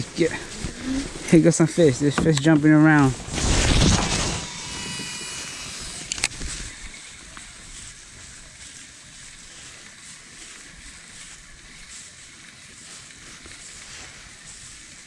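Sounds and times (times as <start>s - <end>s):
wind: 0.0s - 15.0s
water around a kayak: 5.0s - 15.0s.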